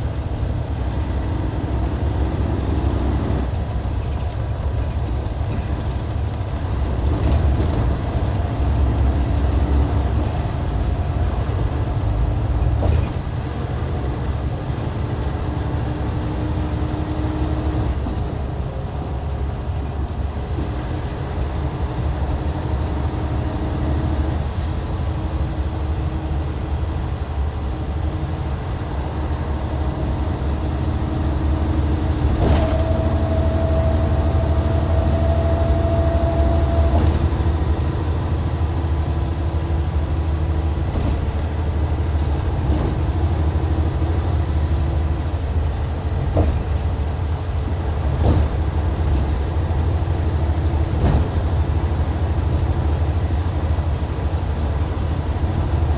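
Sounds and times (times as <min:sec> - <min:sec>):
diesel engine droning: 0:00.0 - 0:55.9.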